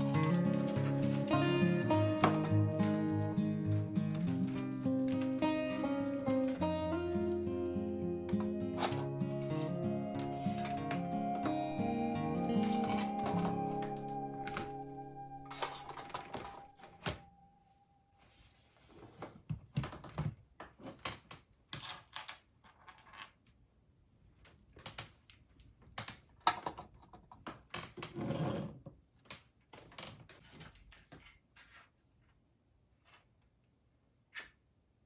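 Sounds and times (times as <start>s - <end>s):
scrape or rustle: 18.1s - 19.4s, 31.0s - 32.2s, 32.9s - 33.4s.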